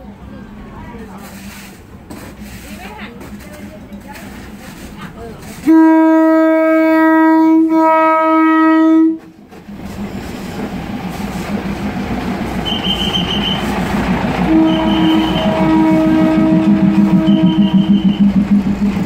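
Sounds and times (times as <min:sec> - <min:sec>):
train rumbling past: 0:00.0 - 0:19.0
train horn blast: 0:05.6 - 0:09.3, 0:12.6 - 0:13.8, 0:14.4 - 0:18.4.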